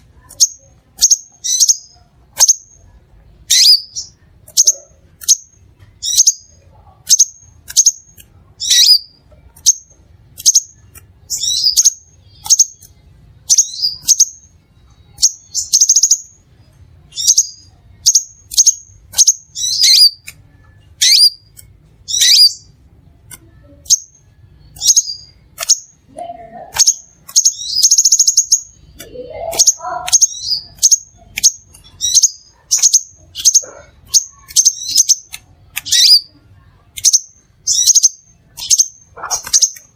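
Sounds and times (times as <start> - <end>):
buzzy bird trill: 0.0 - 22.8, 23.5 - 39.9
sunbird chirps: 26.8 - 35.3.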